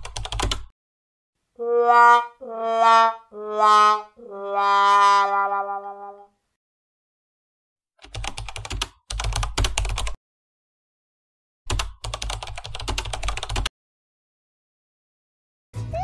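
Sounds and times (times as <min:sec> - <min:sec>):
keyboard typing: 0:00.0 - 0:00.7, 0:08.0 - 0:10.2, 0:11.7 - 0:13.7.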